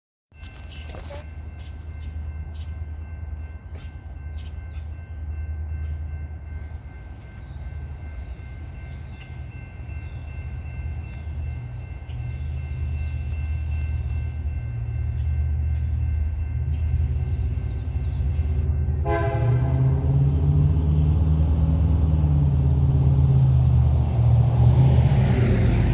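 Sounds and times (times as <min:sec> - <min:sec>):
freight train rumble: 0:00.3 - 0:25.9
locomotive horn chord: 0:15.9 - 0:23.2.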